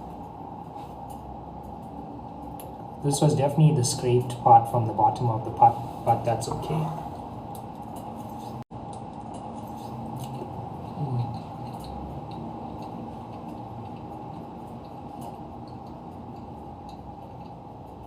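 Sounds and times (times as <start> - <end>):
steady background hum: 0.0 - 18.0
close chewing of food: 7.5 - 18.0.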